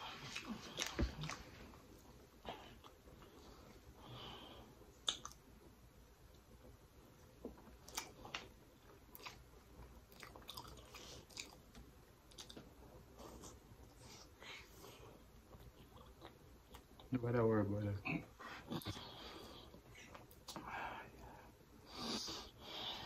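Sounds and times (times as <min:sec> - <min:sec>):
chewing: 0:00.0 - 0:01.6, 0:07.8 - 0:14.0
wet mouth clicks and smacks: 0:05.0 - 0:05.4.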